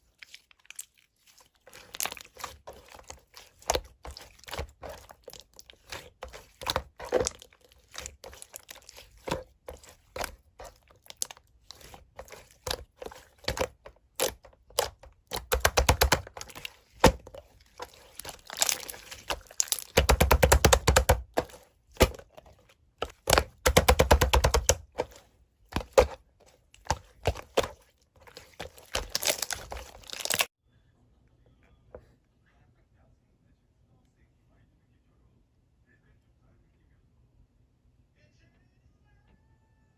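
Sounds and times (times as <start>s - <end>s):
slime clicks and crackling: 0.0s - 22.3s, 26.8s - 30.5s
slime squeezed by hand: 0.0s - 25.2s, 26.8s - 30.5s.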